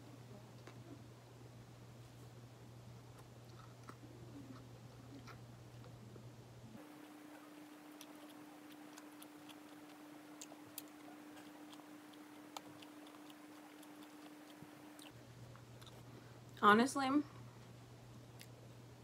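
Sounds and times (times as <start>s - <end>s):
low steady hum: 0.0s - 19.0s
chewing with mouth clicks: 3.2s - 5.4s, 6.8s - 15.2s, 15.8s - 16.0s.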